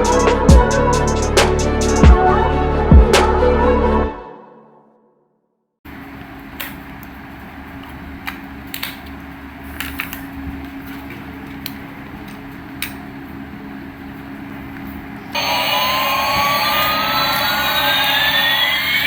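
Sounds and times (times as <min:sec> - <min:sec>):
steady low hum: 0:00.0 - 0:03.5.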